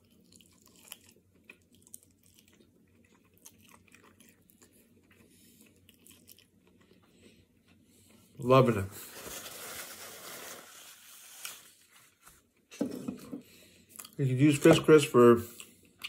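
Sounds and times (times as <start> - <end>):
chewing crispy chicken: 0.0 - 8.3.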